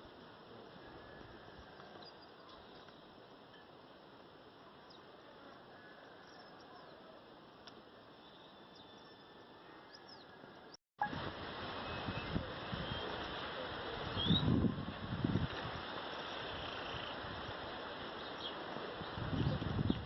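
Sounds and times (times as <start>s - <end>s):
soft outdoor hiss: 0.0s - 20.0s
faint high chirps: 8.1s - 11.2s.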